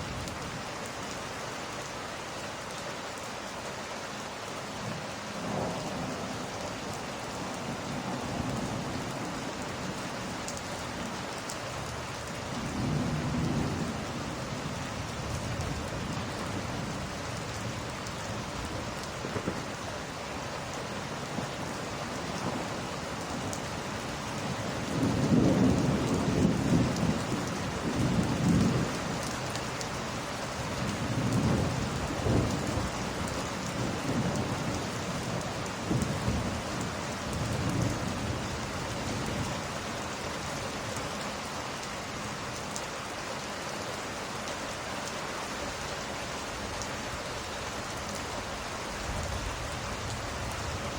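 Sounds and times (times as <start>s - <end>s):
steady rain: 0.0s - 50.9s
thunder rumbling: 12.5s - 19.9s, 21.4s - 29.3s, 30.7s - 39.7s.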